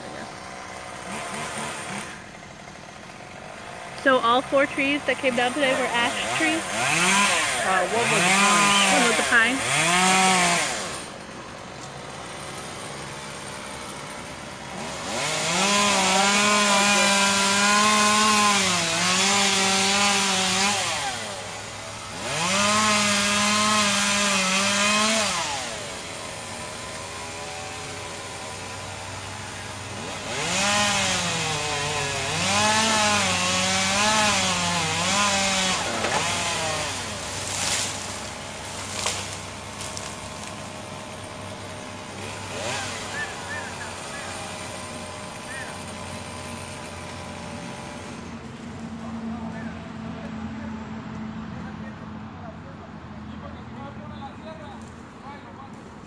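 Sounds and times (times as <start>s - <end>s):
chainsaw cutting wood: 0.0s - 49.1s.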